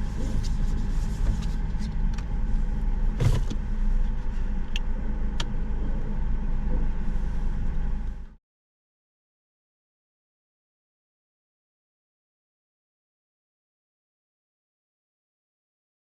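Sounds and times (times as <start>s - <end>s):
low vehicle rumble inside car: 0.0s - 8.4s
thump: 3.2s - 3.6s.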